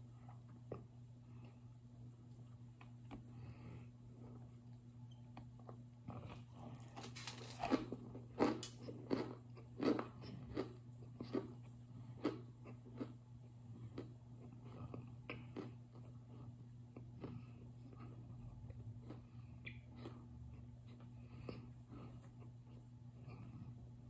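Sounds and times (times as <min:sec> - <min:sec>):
steady low hum: 0:00.0 - 0:24.0
crunching and chewing: 0:05.4 - 0:23.8.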